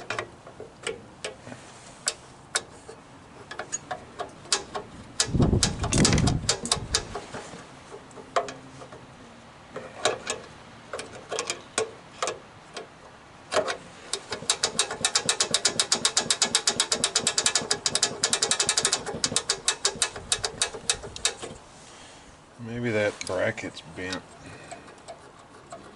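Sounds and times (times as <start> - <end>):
ratchet wrench clicking: 4.5 - 7.2, 14.1 - 21.5.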